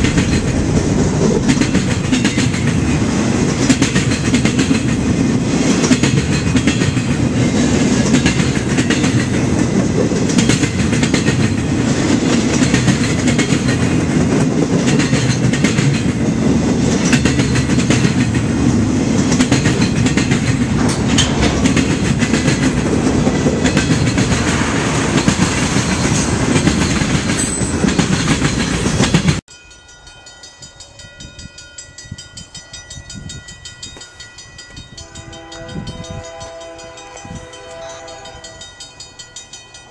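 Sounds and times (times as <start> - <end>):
wheels clattering over rail joints: 0.0 - 29.4
freight train cars rumbling past: 0.0 - 39.9
distant train horn: 35.0 - 39.4.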